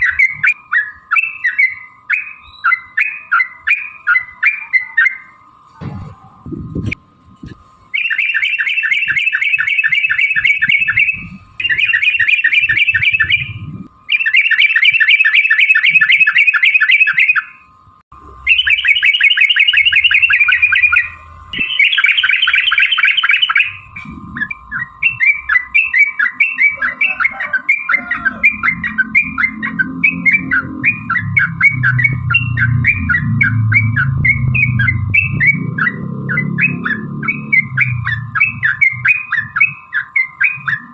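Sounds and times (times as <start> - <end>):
faint high hum: 0.0 - 40.9
bird rattling song: 7.9 - 17.6, 18.5 - 40.9.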